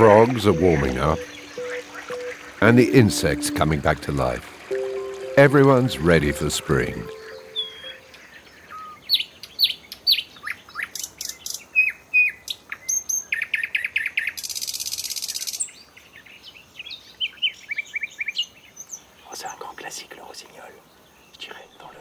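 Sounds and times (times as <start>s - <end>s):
nightingale singing: 0.0s - 15.5s.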